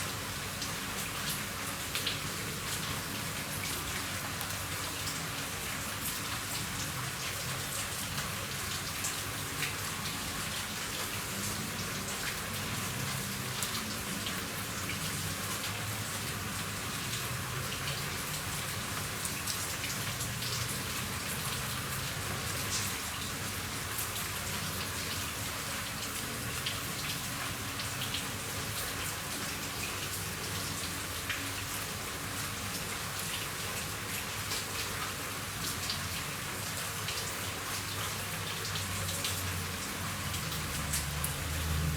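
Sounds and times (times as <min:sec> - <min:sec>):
rain falling on a roof: 0:00.0 - 0:41.9.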